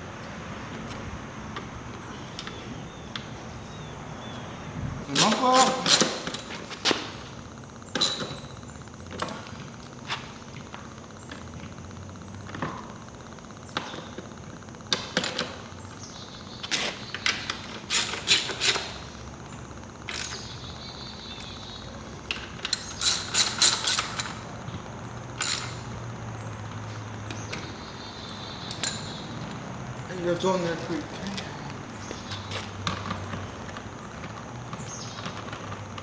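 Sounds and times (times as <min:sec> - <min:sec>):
metal tools clicking and clinking: 0:17.9 - 0:19.0, 0:22.3 - 0:24.5, 0:25.4 - 0:26.0, 0:28.7 - 0:29.2.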